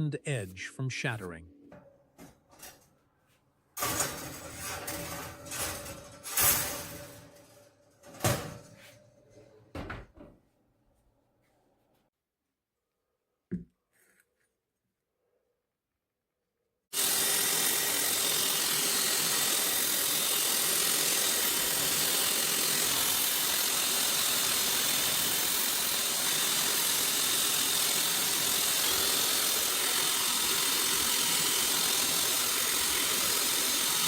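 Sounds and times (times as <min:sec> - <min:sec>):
power grinder grinding steel: 0:17.0 - 0:34.0.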